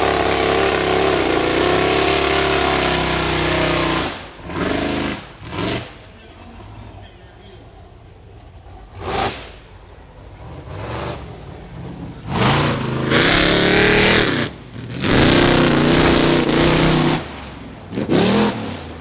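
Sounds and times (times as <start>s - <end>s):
buggy engine revving: 0.0s - 7.0s, 7.6s - 19.0s
engine throttle blips: 7.8s - 19.0s.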